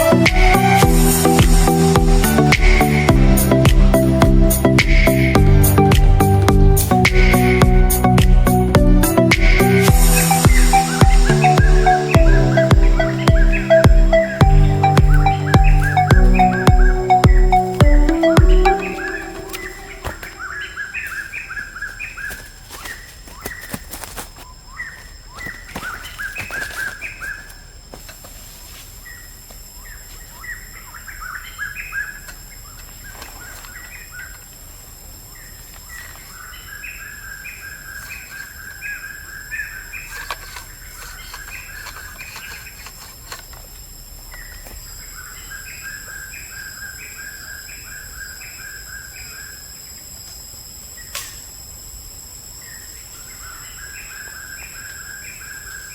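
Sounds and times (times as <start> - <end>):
steady high whine: 0.0 - 22.2
songbird chirping: 0.0 - 27.8, 52.1 - 55.9.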